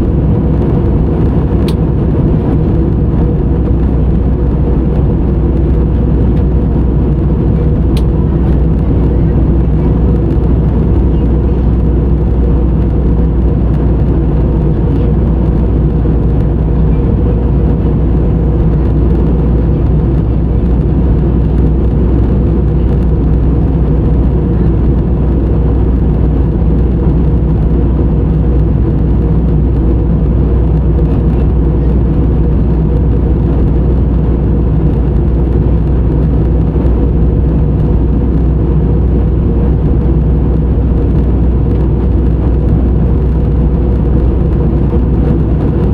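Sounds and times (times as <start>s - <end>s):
jet cabin engine drone: 0.0s - 45.9s.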